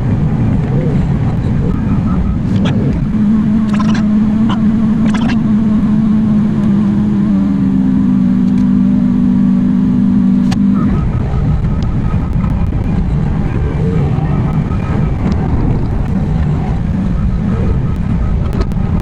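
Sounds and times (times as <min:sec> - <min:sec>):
excavator engine rumbling: 0:00.0 - 0:19.0.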